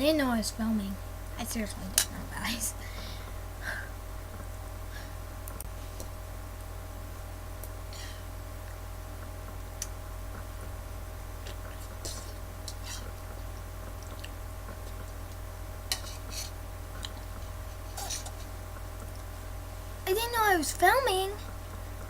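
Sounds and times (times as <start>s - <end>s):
low hum: 0.0s - 22.0s
person chewing food: 11.4s - 19.3s.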